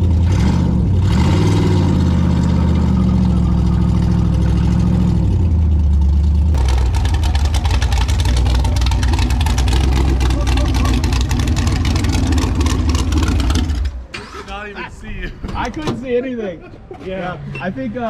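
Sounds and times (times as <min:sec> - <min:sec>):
car engine running: 0:00.0 - 0:14.1.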